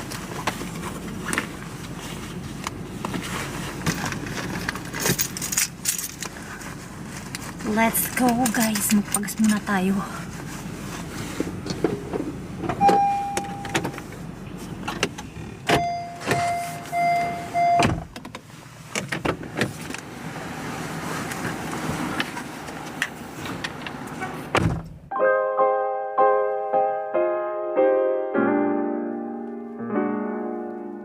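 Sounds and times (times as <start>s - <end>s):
handling noises: 0.0s - 20.0s.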